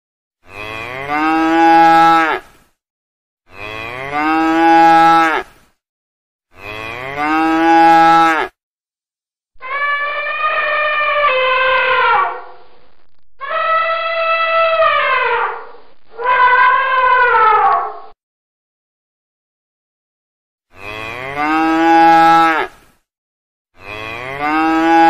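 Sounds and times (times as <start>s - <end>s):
cow mooing: 6.6s - 8.6s, 20.7s - 22.7s, 23.8s - 25.0s
higher falling animal call: 9.6s - 12.6s, 13.4s - 18.0s.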